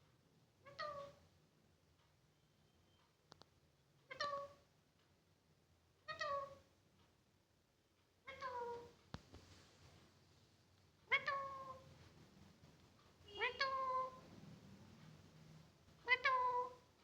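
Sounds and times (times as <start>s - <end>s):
parrot making meow-like calls: 0.6s - 1.2s, 4.1s - 4.6s, 6.1s - 6.6s, 11.1s - 11.8s, 16.0s - 16.8s.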